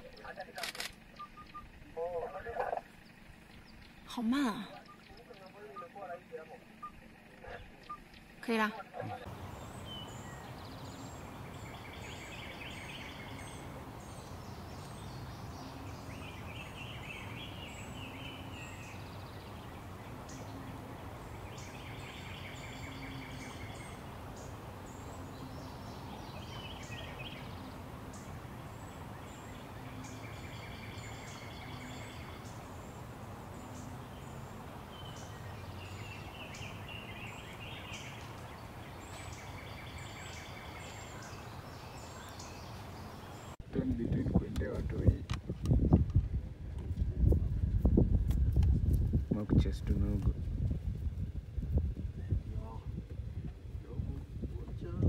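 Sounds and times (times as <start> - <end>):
birds trilling chirps: 0.0 - 43.6.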